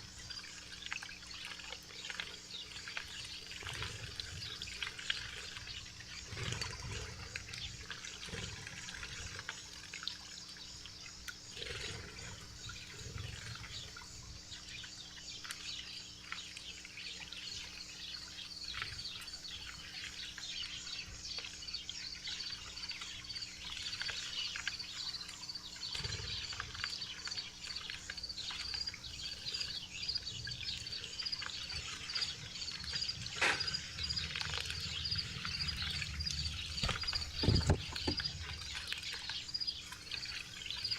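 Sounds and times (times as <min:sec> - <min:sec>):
small birds chirping: 0:00.0 - 0:40.9
high evenly repeated bird notes: 0:13.6 - 0:40.9.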